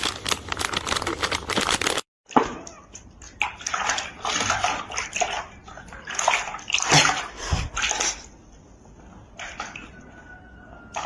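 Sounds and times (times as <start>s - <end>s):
water splashing and sloshing: 2.3s - 11.0s.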